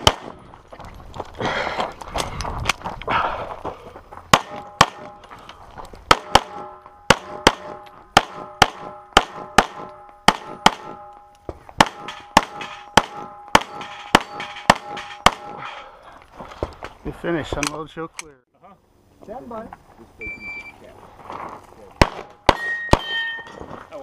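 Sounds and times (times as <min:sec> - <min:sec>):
pistol shots: 0:00.0 - 0:00.4, 0:04.3 - 0:05.2, 0:06.1 - 0:11.2, 0:11.8 - 0:15.6, 0:22.0 - 0:23.3
steel targets ringing: 0:06.2 - 0:15.9, 0:22.4 - 0:23.7.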